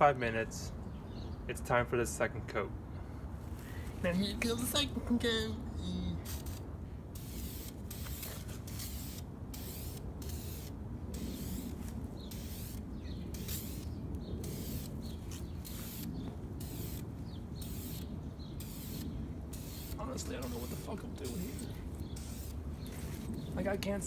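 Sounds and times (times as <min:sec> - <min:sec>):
aerosol can spraying: 0:06.2 - 0:06.6, 0:07.2 - 0:17.0, 0:17.6 - 0:23.3.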